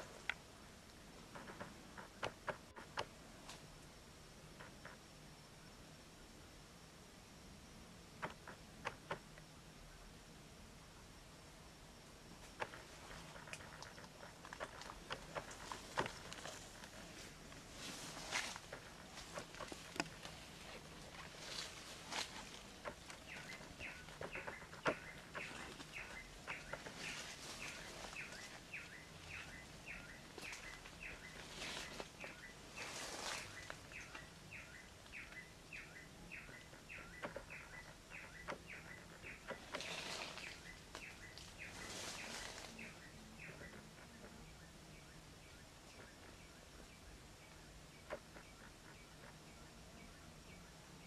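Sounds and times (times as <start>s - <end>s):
rustling in dry leaves: 12.4s - 44.3s
bird chirping: 12.4s - 51.0s.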